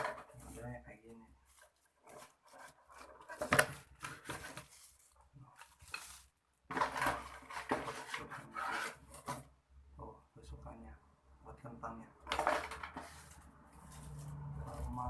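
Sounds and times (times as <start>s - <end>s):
packaging rustling: 1.4s - 8.3s.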